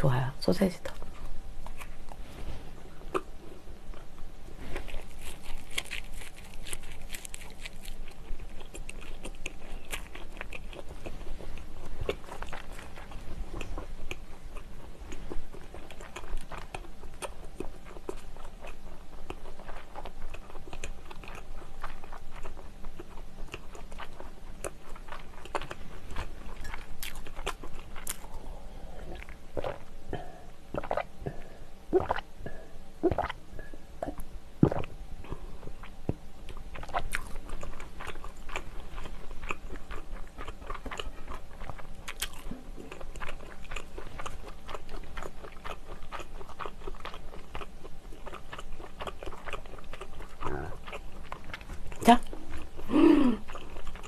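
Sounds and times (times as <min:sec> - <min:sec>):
wet chewing: 0:02.8 - 0:28.4, 0:29.0 - 0:54.0
gulps of milk swallowed: 0:29.0 - 0:34.9.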